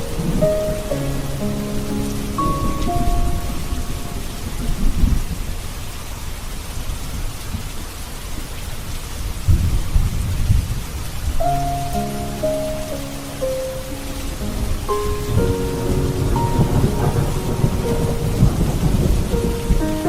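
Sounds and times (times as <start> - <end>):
soft sustained music notes: 0.0 - 5.3, 11.4 - 20.0
thunder rolling: 0.0 - 5.8, 14.2 - 20.0
steady rain: 0.0 - 20.0.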